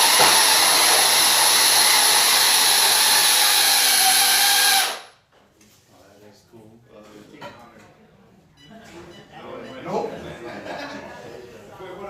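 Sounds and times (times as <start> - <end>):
electric motor whining: 0.0 - 5.1.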